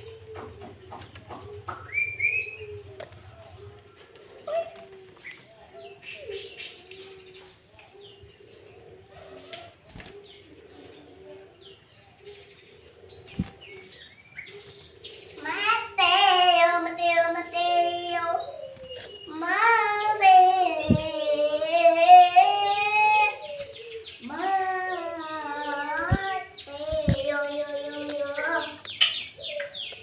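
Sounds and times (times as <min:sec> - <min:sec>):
child singing: 0:15.4 - 0:18.5, 0:19.3 - 0:23.5, 0:24.2 - 0:28.9.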